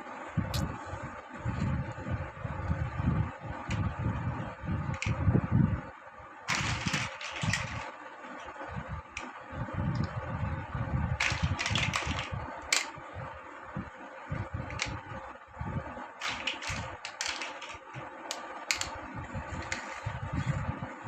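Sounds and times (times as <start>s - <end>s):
faint steady hum: 0.0s - 21.0s
plastic blocks clicking: 4.9s - 5.2s, 6.5s - 8.0s, 11.2s - 13.0s, 14.7s - 15.0s, 16.2s - 19.0s, 19.6s - 20.0s.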